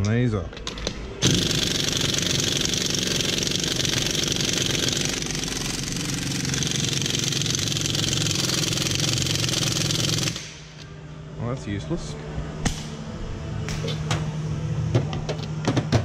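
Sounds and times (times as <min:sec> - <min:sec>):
pneumatic impact wrench hammering: 0:00.6 - 0:10.8.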